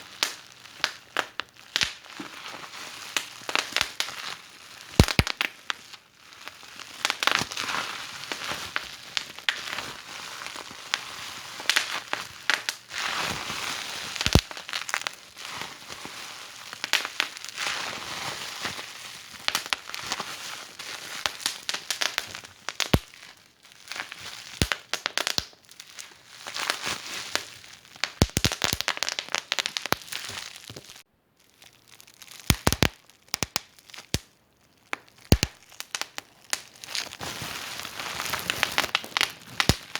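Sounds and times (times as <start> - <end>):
wood fire crackling: 4.8 - 5.6, 14.2 - 15.1, 27.4 - 31.1, 31.8 - 39.9.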